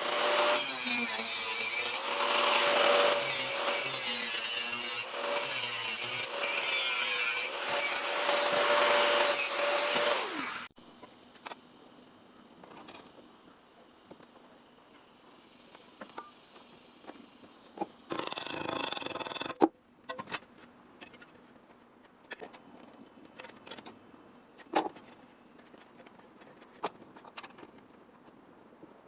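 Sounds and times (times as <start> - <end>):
insects chirring: 10.8 - 29.0.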